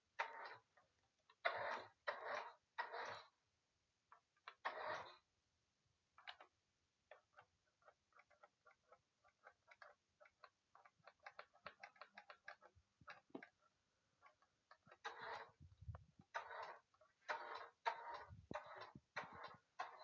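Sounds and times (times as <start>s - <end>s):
faint small clicks: 6.2s - 13.6s.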